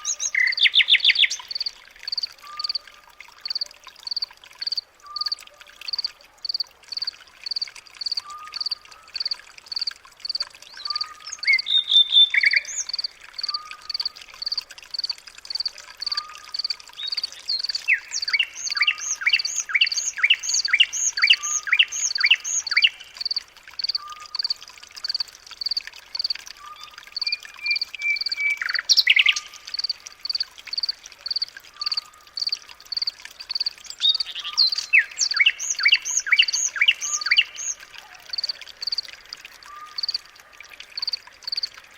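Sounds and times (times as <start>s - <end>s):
birds calling and singing: 0.0s - 2.8s, 6.0s - 14.6s, 16.0s - 39.0s.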